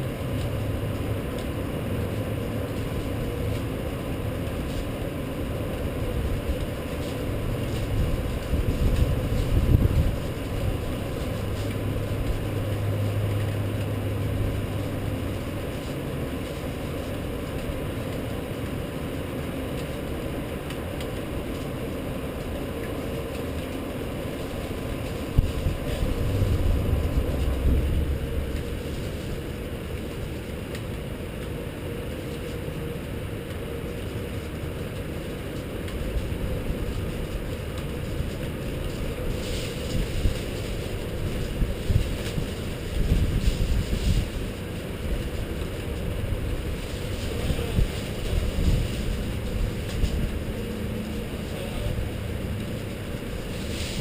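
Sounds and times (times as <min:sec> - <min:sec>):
city traffic rumble: 0:00.0 - 0:54.0.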